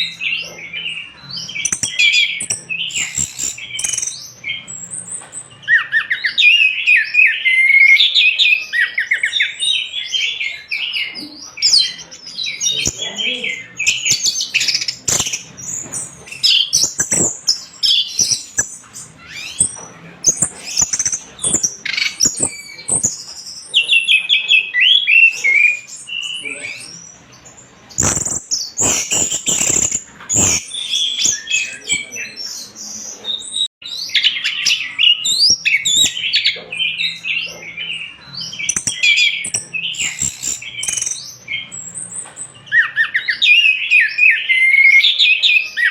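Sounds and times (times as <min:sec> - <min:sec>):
sharp clicks: 0:01.6 - 0:04.3, 0:13.8 - 0:18.9, 0:28.0 - 0:30.6.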